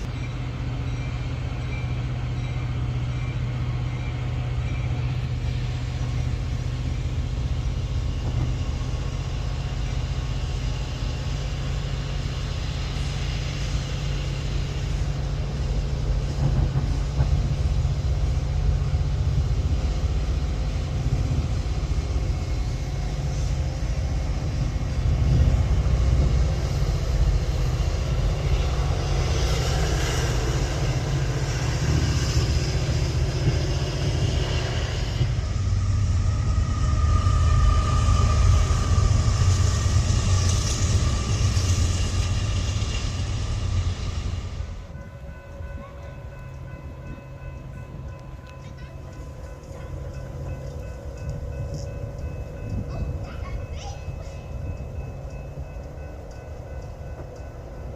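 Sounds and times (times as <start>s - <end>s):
train low rumble: 0.0s - 57.9s.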